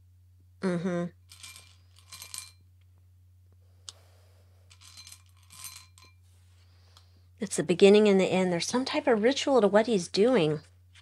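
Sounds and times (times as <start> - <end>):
faint clinks: 1.2 - 2.6, 4.7 - 6.2.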